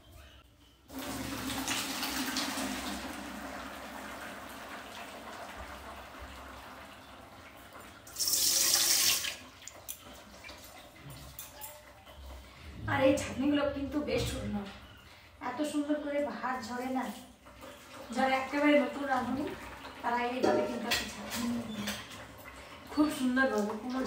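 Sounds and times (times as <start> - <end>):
water pouring into a strainer: 0.9 - 10.7.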